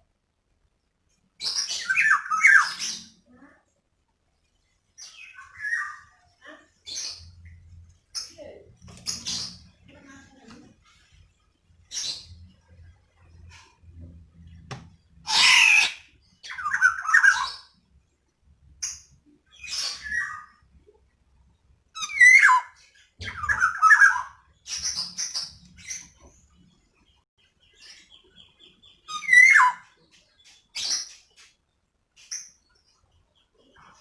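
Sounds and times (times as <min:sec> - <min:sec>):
oriole harsh squawks: 0:15.2 - 0:17.5.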